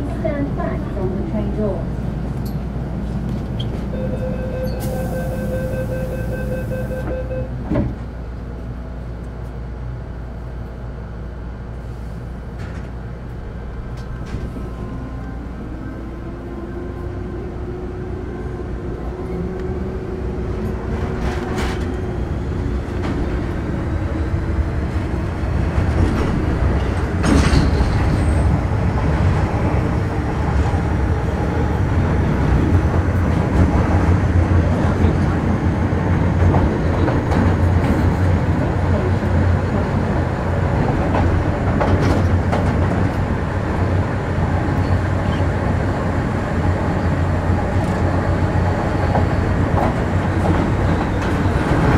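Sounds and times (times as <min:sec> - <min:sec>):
train wheel and rail rumble: 0:00.0 - 0:51.9.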